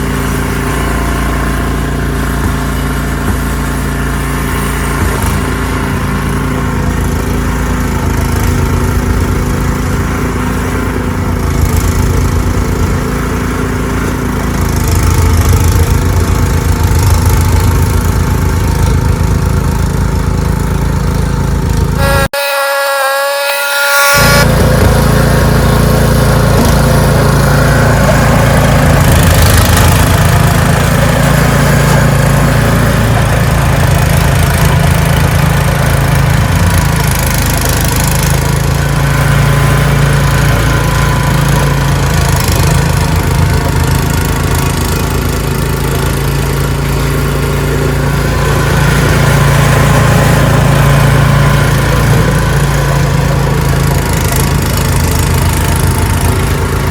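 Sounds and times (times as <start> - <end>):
snowblower engine running: 0.0 - 56.9.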